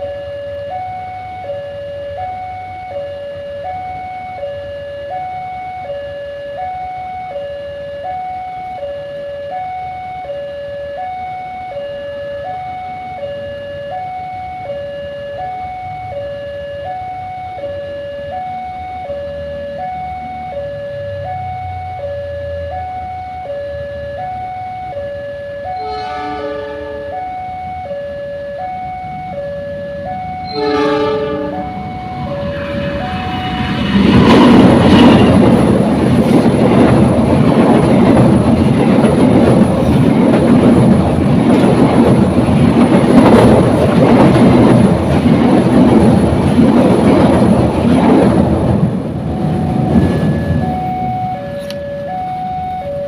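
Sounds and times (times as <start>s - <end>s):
two-tone electronic warning alarm: 0.0s - 47.7s, 48.8s - 53.0s
low rumble: 31.8s - 51.2s.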